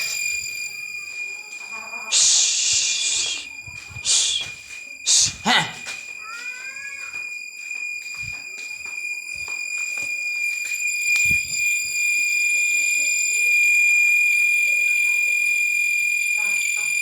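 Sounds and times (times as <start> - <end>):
high-pitched whistling tone: 0.0 - 5.6, 6.2 - 14.1.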